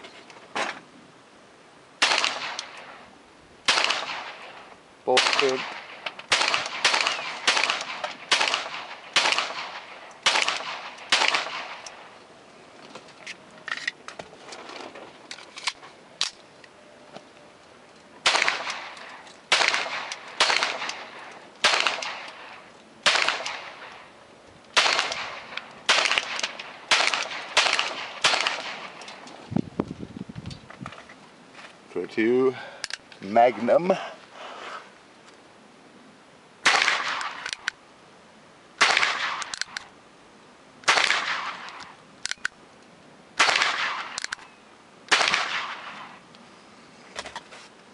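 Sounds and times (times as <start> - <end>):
pistol shots with ringing echo: 2.0 - 3.0, 3.7 - 12.1, 18.2 - 24.1, 24.8 - 29.0, 36.6 - 37.7, 38.8 - 39.8, 40.8 - 41.9, 43.4 - 44.4, 45.1 - 46.2.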